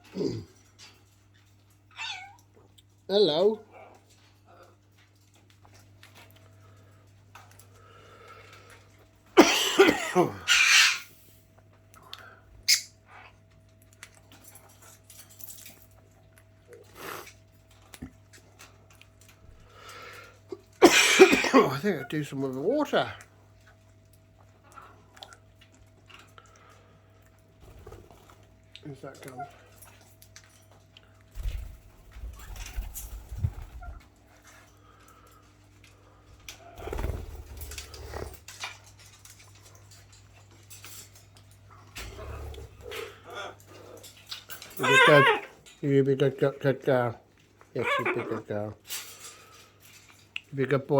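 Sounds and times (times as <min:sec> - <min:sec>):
small clicks of birds moving: 0:00.1 - 0:03.1, 0:03.7 - 0:09.4, 0:11.1 - 0:20.8, 0:22.0 - 0:50.9
parrots squawking and chirping: 0:01.8 - 0:02.4, 0:10.3 - 0:11.4, 0:12.6 - 0:13.4, 0:42.0 - 0:45.7, 0:47.7 - 0:49.7.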